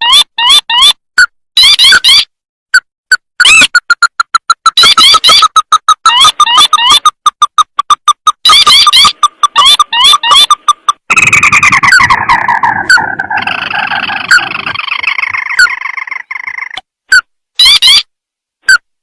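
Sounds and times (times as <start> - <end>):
crake bird calls: 8.4 - 18.0.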